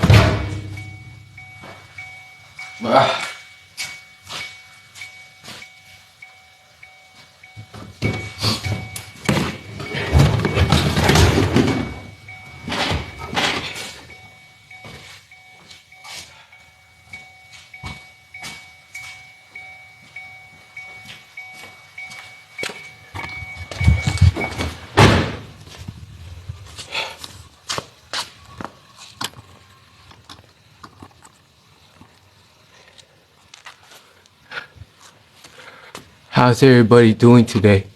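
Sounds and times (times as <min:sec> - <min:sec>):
knocks and thuds in car interior: 0:00.0 - 0:02.0, 0:07.7 - 0:14.0, 0:22.6 - 0:26.0
low thumps: 0:00.0 - 0:02.4, 0:07.6 - 0:15.0, 0:22.7 - 0:26.6
loud sharp bang with ring: 0:00.0 - 0:02.9
rattling and scraping: 0:00.0 - 0:05.7, 0:07.6 - 0:15.3, 0:22.3 - 0:31.1.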